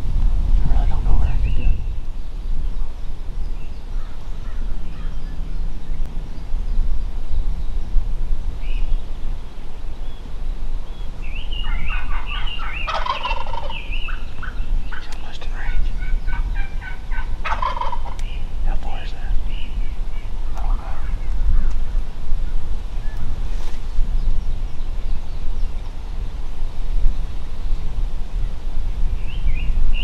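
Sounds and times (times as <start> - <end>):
steady low rumble: 0.0 - 30.0
turkey gobbling: 11.6 - 15.0, 16.0 - 18.2.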